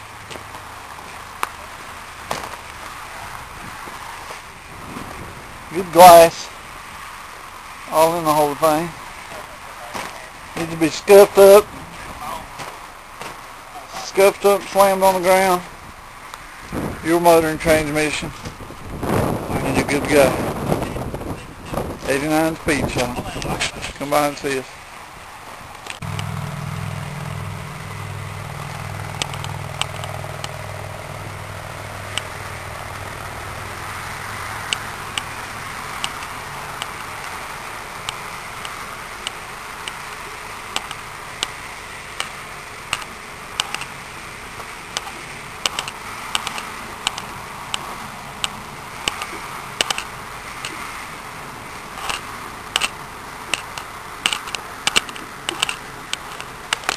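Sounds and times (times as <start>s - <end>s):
steady hiss: 0.0s - 56.9s
vehicle engine running: 26.0s - 56.9s
sharp clicks: 28.6s - 30.7s, 36.0s - 37.1s, 40.7s - 41.6s, 42.2s - 43.9s, 44.9s - 50.8s, 52.0s - 56.9s.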